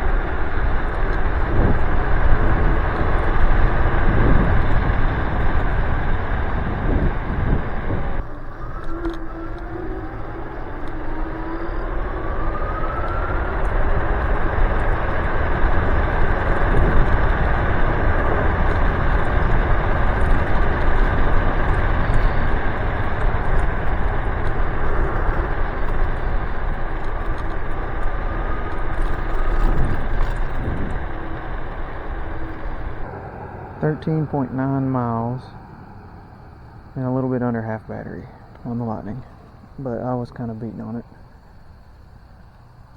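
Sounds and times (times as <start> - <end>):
tyre rumble: 0.0 - 37.0
faint electric motor whine: 0.0 - 42.9
wind rushing over microphone: 0.0 - 42.9.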